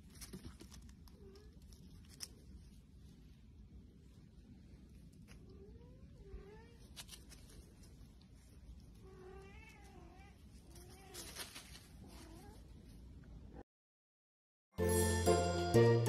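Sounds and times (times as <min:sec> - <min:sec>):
rustling scuffle: 0:10.5 - 0:12.6.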